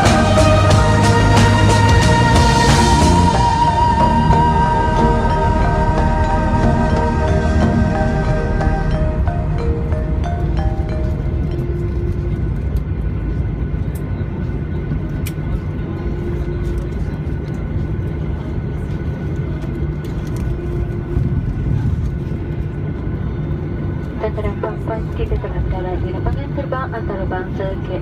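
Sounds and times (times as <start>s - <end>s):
background music: 0.0s - 13.4s
airplane cabin rumble: 0.0s - 28.0s.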